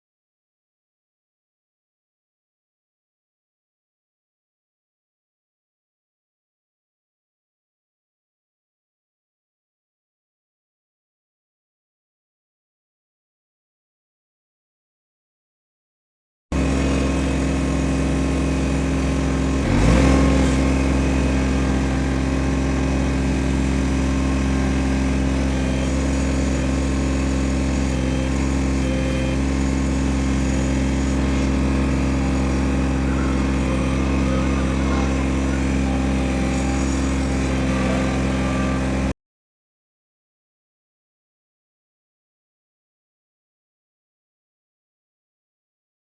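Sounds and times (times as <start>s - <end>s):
tractor engine running: 16.5s - 39.1s.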